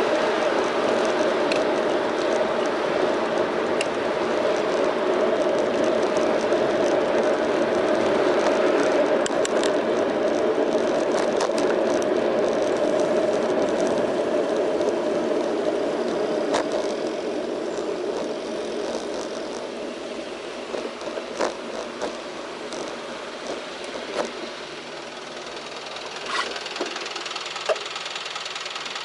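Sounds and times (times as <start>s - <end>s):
bicycle rattling clicks: 0.0s - 29.0s
road and traffic noise: 0.0s - 29.0s.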